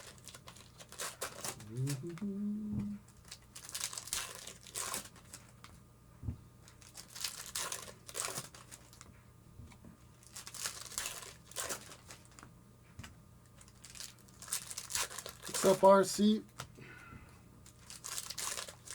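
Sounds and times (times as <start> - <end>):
foil wrappers tearing and crinkling: 0.0 - 2.2, 3.1 - 5.7, 6.7 - 9.1, 10.2 - 12.5, 13.6 - 15.9, 17.6 - 18.9.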